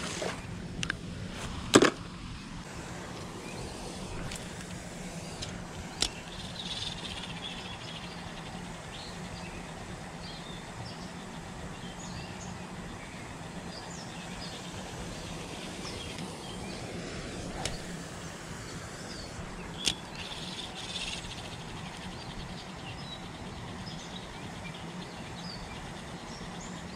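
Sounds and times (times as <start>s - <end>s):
steady low hum: 0.0s - 26.9s
small birds chirping: 3.1s - 26.9s
sharp click: 19.8s - 22.1s.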